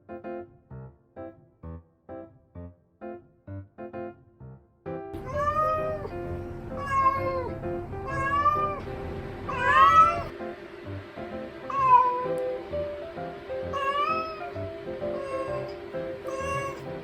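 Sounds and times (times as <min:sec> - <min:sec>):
cat meowing: 0:05.2 - 0:08.8, 0:09.5 - 0:10.3, 0:11.7 - 0:12.6, 0:13.7 - 0:17.0.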